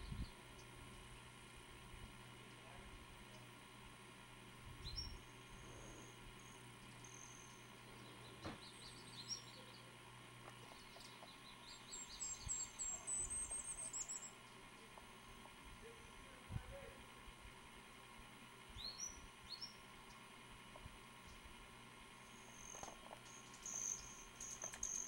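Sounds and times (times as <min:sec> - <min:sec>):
high-pitched bird chirps: 0:10.8 - 0:14.4, 0:22.4 - 0:25.0.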